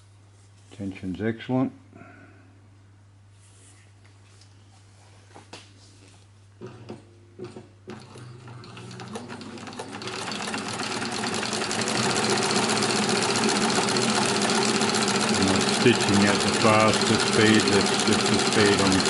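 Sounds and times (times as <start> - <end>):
sewing machine clicks: 6.6 - 19.0
sewing machine stitching: 6.6 - 19.0.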